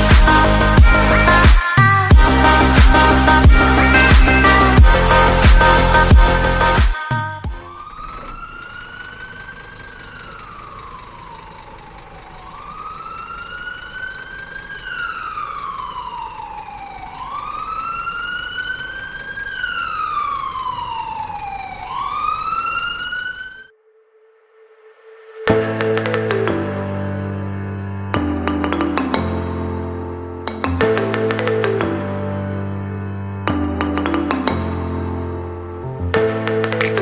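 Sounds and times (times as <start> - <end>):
fire engine wail siren: 0.0 - 24.0.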